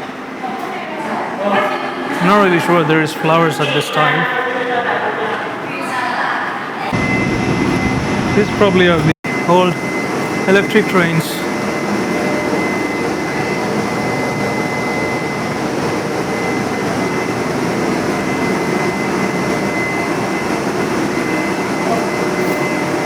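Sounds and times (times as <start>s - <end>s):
thin high whine: 1.6s - 6.2s, 6.8s - 23.0s
mechanical drone: 6.9s - 23.0s.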